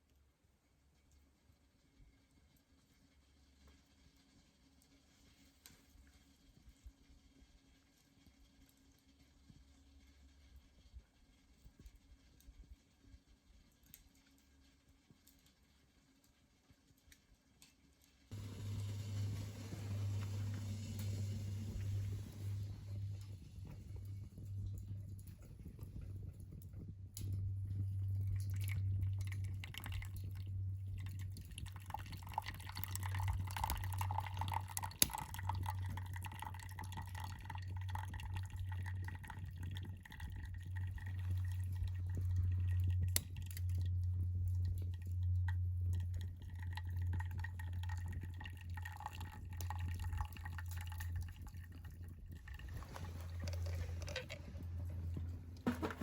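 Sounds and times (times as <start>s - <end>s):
water pouring from kettle: 18.3s - 25.8s, 27.7s - 44.0s, 44.6s - 56.0s
steady low hum: 18.3s - 56.0s.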